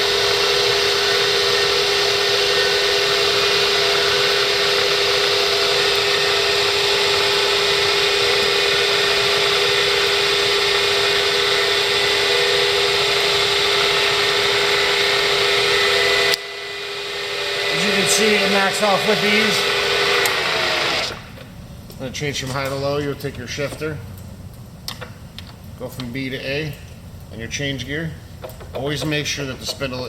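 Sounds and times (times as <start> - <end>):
milling machine humming: 0.0 - 23.8.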